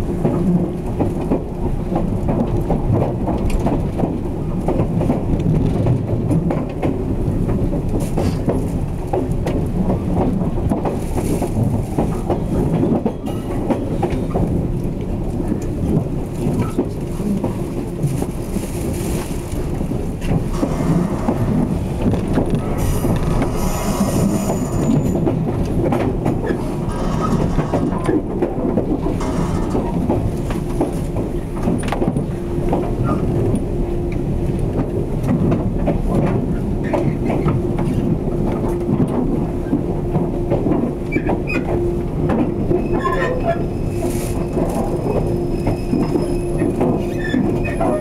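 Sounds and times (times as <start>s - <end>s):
train wheels rumbling and clicking: 0.0s - 48.0s
steady tone: 20.5s - 25.3s.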